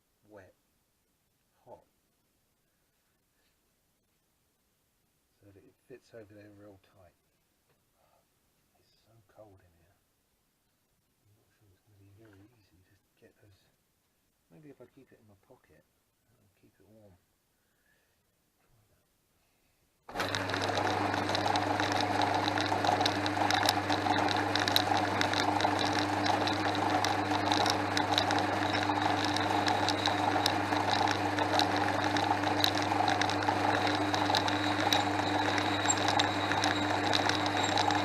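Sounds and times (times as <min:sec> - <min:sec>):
metalworking lathe humming: 0:20.1 - 0:38.0.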